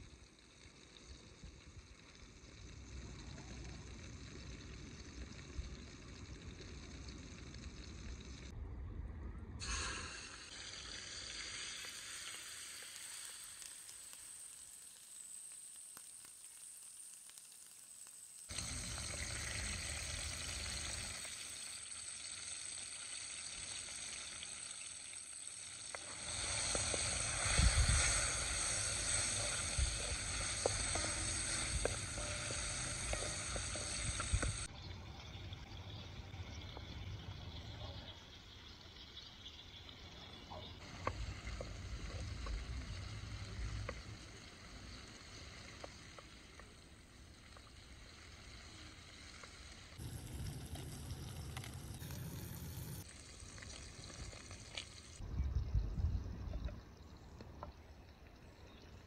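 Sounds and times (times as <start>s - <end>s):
food sizzling in a frying pan: 9.6s - 34.8s, 40.8s - 55.2s.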